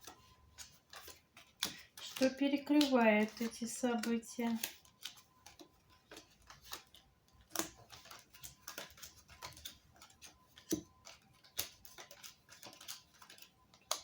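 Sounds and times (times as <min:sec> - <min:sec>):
playing cards clicking on table: 0:00.9 - 0:14.0.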